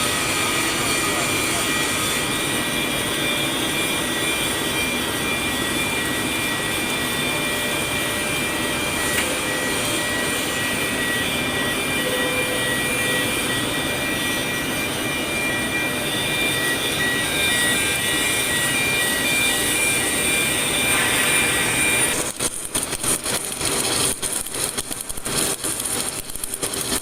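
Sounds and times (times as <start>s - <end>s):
thin high steady tones: 9.3s - 27.0s.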